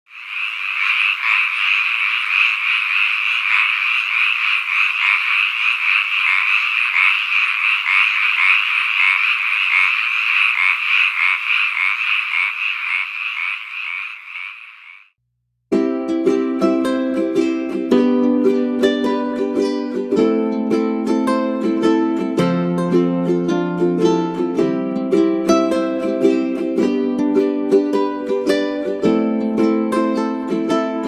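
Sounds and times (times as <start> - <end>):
chorus of frogs calling: 0.1 - 15.1.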